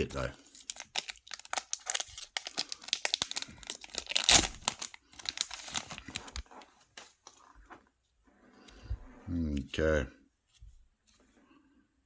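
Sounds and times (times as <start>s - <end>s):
wrapper crinkling and tearing: 0.0s - 6.6s.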